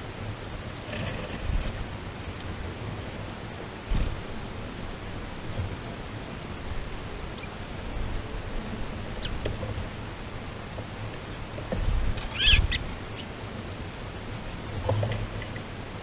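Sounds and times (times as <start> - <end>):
small birds chirping: 11.2 - 13.4
squeaky bird call: 11.8 - 13.2.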